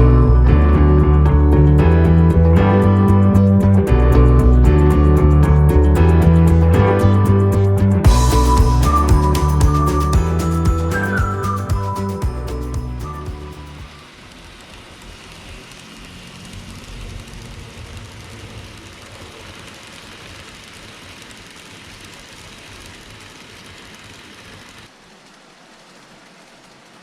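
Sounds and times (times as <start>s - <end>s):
model train wheels hissing on rails: 13.9s - 27.0s.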